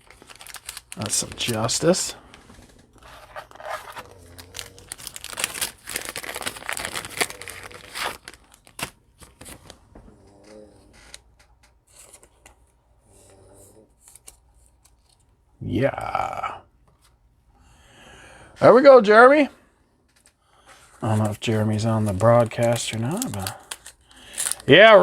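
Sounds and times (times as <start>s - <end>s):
card pack wrapper tearing and crinkling: 0.0s - 2.4s, 3.0s - 9.8s, 14.0s - 15.2s, 21.0s - 25.0s.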